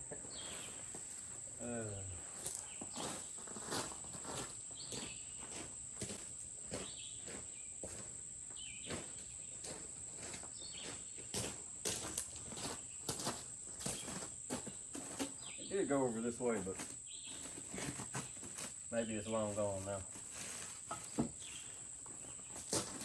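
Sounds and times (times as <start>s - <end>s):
insects trilling: 0.0s - 23.0s
crunching footsteps: 0.2s - 23.0s.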